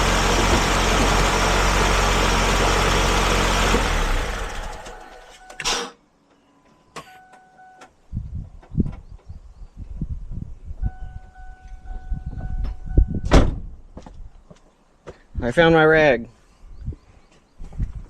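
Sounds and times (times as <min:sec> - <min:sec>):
car engine idling with tick: 0:00.0 - 0:05.6.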